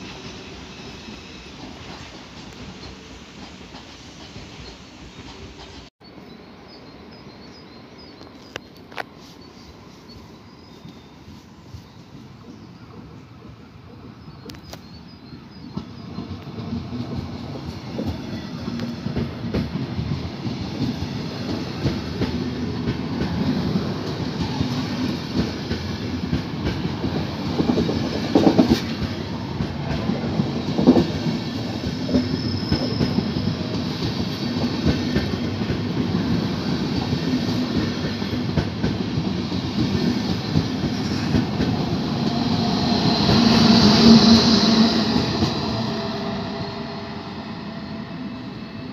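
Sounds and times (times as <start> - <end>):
train wheels clattering: 0.0 - 5.9, 15.5 - 47.0.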